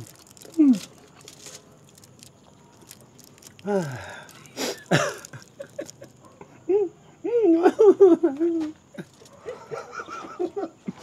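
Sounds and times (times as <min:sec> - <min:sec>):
person making wordless vocal sounds: 0:00.0 - 0:01.0, 0:03.6 - 0:05.6
faint clicks and rustling: 0:00.0 - 0:06.4, 0:08.7 - 0:09.6.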